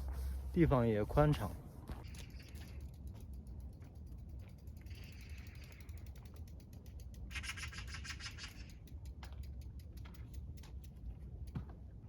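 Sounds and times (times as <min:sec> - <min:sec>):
bicycle freewheel ticking: 0:02.0 - 0:11.6.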